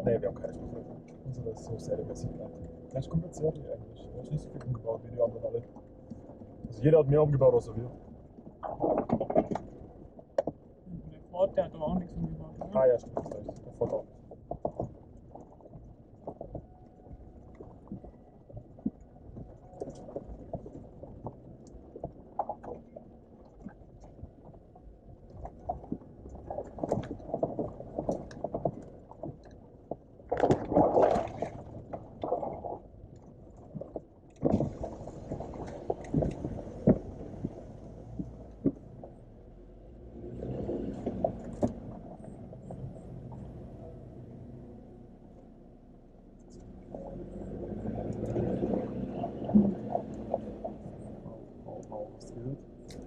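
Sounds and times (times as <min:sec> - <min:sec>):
vehicle engine low rumble: 0:00.0 - 0:53.0
wheels knocking over stones: 0:08.4 - 0:10.7, 0:12.6 - 0:39.2.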